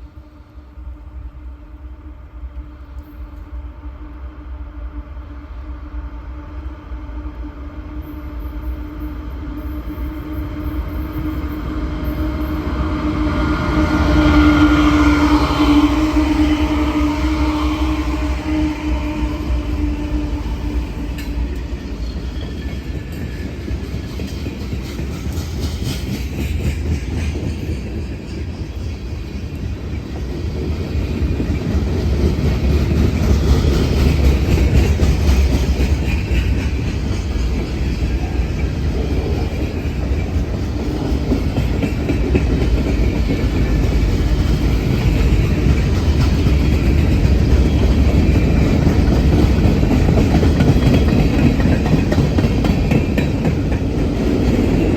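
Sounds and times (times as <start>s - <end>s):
freight train wheels clattering: 20.6s - 54.9s.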